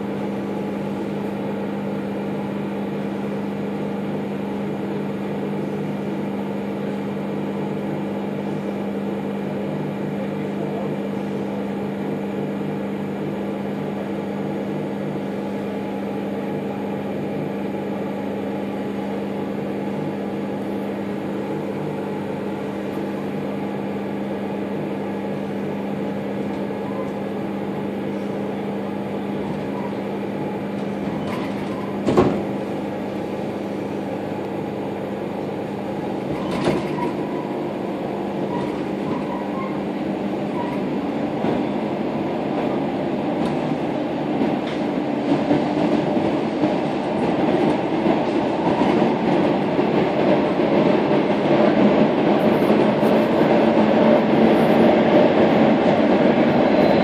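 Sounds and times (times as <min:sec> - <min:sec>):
electric train humming: 0:00.0 - 0:57.0
train pulling away: 0:13.5 - 0:57.0.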